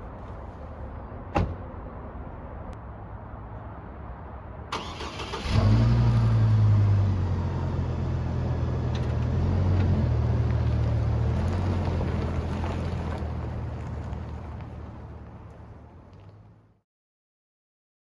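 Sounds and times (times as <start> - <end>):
truck engine starting and idling: 4.7 - 14.6.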